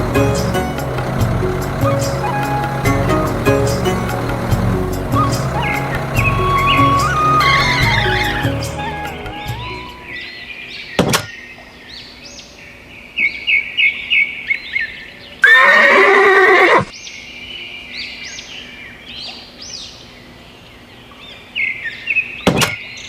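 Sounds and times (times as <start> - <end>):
horse neighing: 6.4 - 10.0, 15.4 - 16.9.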